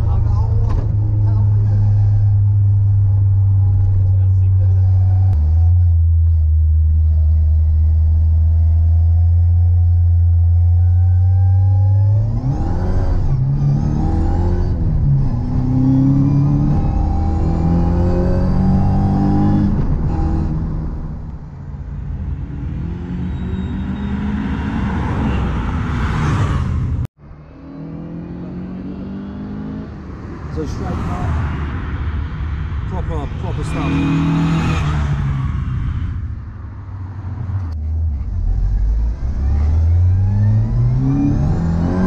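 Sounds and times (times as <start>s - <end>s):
road traffic: 0.0s - 42.0s
car engine accelerating through gears: 0.3s - 21.5s, 37.1s - 42.0s.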